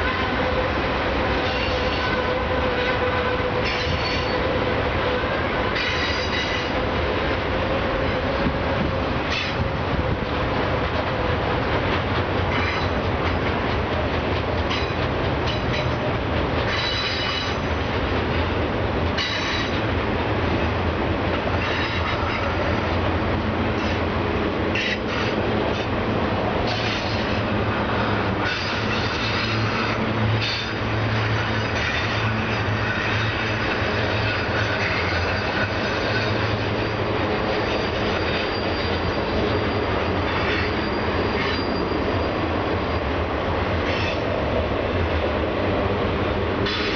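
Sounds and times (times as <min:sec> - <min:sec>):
train wheels rumbling on rail: 0:00.0 - 0:46.9
high-pitched wheel squeal: 0:03.6 - 0:04.4, 0:34.2 - 0:43.1.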